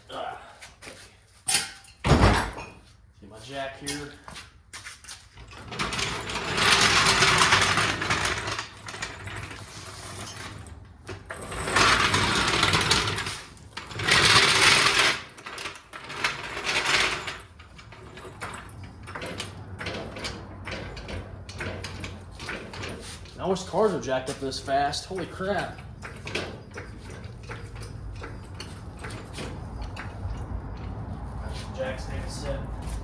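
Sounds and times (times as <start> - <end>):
floor jack rattling and clicking: 5.4 - 31.0.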